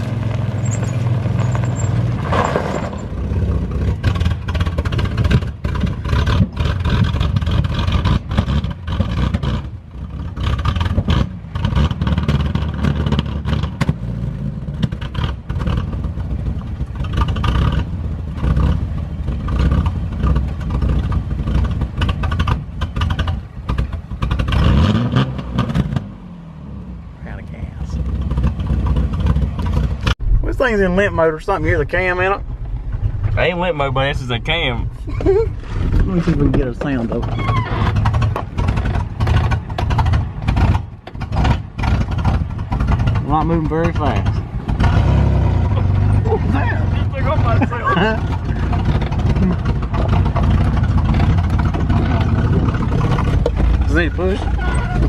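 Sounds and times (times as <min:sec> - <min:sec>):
engine clattering: 0:00.0 - 0:26.0, 0:27.5 - 0:55.0
pickup truck engine revving: 0:27.8 - 0:55.0.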